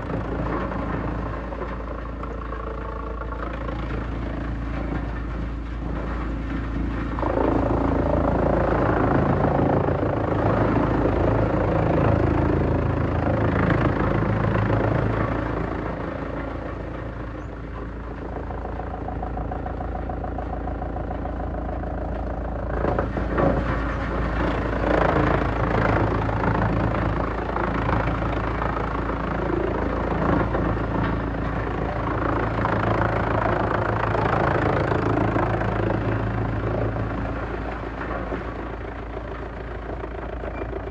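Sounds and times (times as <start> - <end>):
steady whine: 0.0 - 40.9
wood chipper grinding wood: 0.0 - 40.9.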